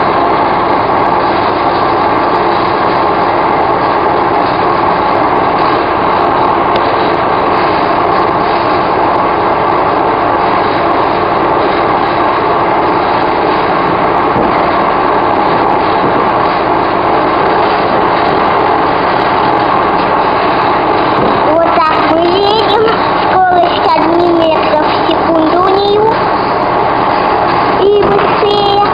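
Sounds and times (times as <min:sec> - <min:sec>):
electric train running: 0:00.0 - 0:28.9.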